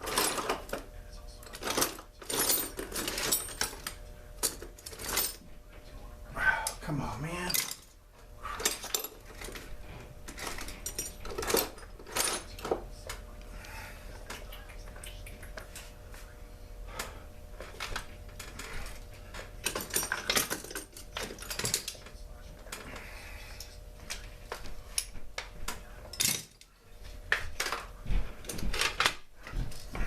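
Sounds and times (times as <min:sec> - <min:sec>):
tools and metal parts clinking: 0:00.0 - 0:05.4, 0:07.4 - 0:08.0, 0:08.6 - 0:13.2, 0:17.6 - 0:26.7, 0:27.5 - 0:30.0.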